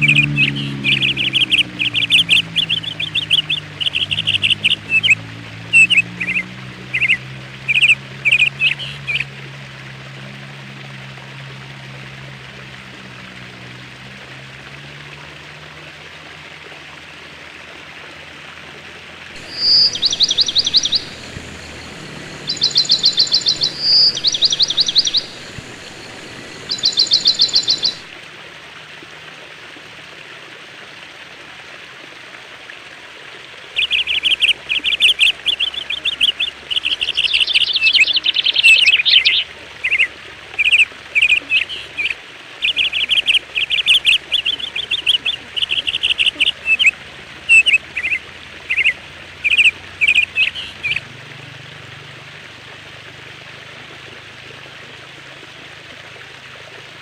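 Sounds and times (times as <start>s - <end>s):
songbirds chirping: 0.0s - 5.2s, 19.4s - 28.1s
steady background hiss: 19.4s - 28.1s.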